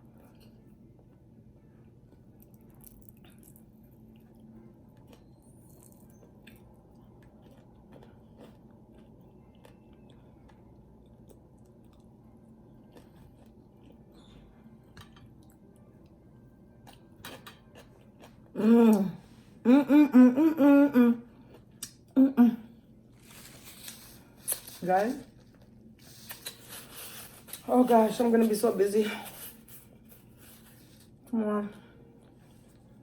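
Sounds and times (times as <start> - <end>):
person chewing: 2.1 - 14.3, 16.8 - 19.1.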